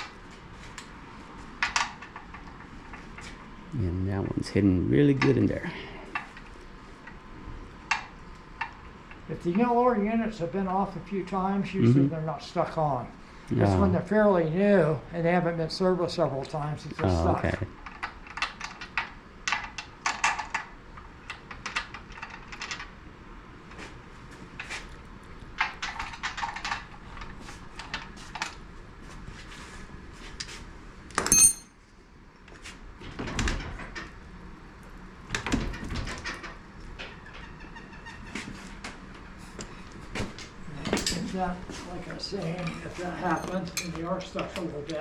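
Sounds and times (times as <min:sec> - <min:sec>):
tools clinking and knocking: 0:31.2 - 0:31.7, 0:43.2 - 0:44.5
ringing metal clink: 0:31.2 - 0:31.8.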